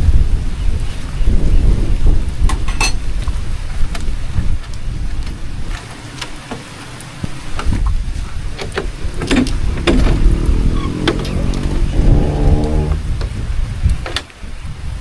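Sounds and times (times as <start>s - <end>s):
wind and rain rumbling: 0.0s - 15.0s
raindrops ticking: 3.9s - 14.3s.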